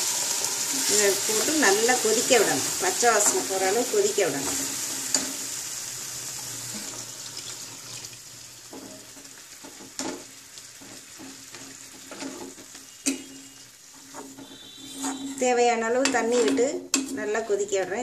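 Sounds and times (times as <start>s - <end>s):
masala sizzling in a pan: 0.0s - 18.0s
ladle stirring in a pan: 6.6s - 17.8s
ladle tapping a pan: 8.7s - 15.4s.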